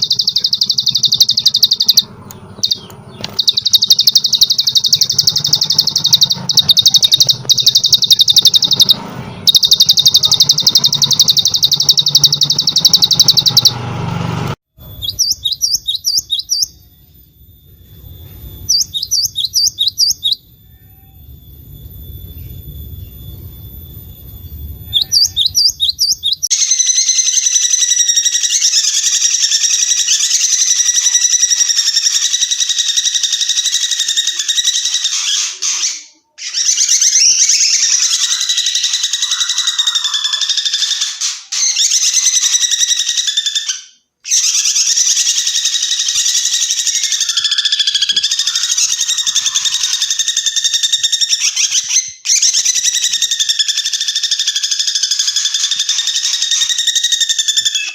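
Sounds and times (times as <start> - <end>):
bird whistled notes: 0.0 - 13.8, 14.8 - 57.9
songbird chattering trill: 0.0 - 13.8, 15.0 - 16.9, 18.7 - 20.4, 24.8 - 27.8.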